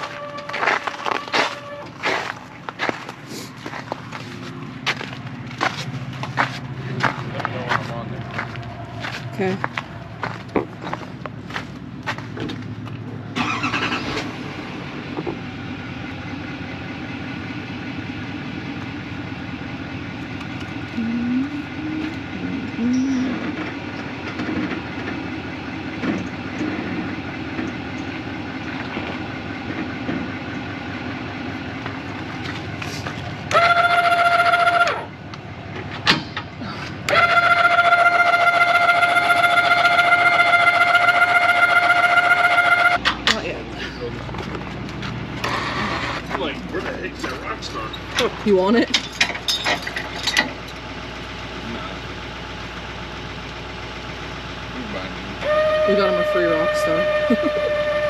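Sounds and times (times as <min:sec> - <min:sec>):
loud steady pitched tone: 0:00.0 - 0:03.1, 0:21.0 - 0:23.6, 0:33.5 - 0:35.2, 0:37.1 - 0:43.5, 0:54.8 - 0:58.0
vehicle engine running: 0:00.0 - 0:58.0.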